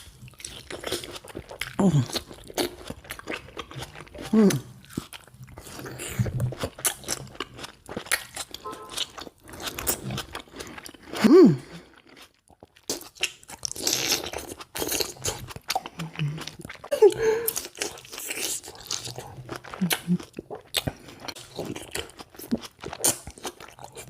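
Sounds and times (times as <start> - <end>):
chewing juicy tomatoes: 0.0 - 24.0.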